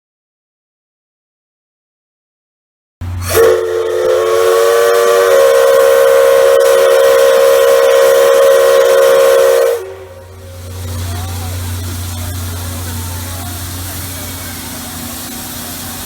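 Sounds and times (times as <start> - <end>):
low hum: 3.0 - 16.0
steam hissing: 3.0 - 16.0
steam locomotive whistle: 3.2 - 16.0.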